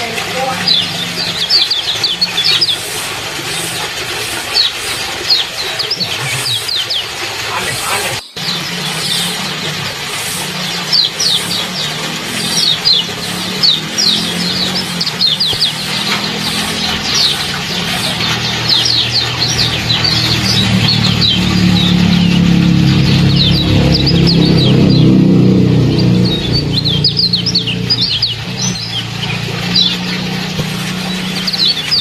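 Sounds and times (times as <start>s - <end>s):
songbirds chirping: 0.0s - 32.0s
steady low hum: 7.8s - 32.0s.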